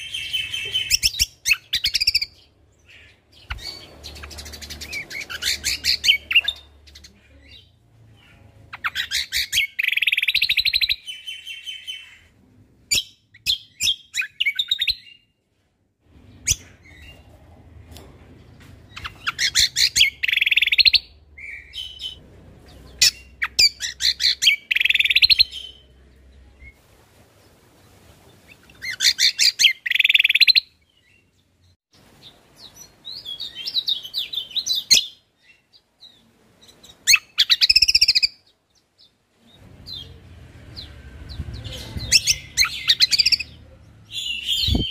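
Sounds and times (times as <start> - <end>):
songbird chattering and trilling: 0.0 - 12.3, 18.9 - 25.9.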